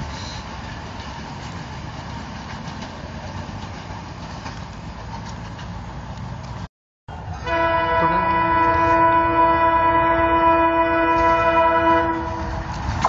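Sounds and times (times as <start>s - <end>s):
distant train rumble: 0.0s - 13.0s
locomotive horn chord: 7.4s - 12.7s.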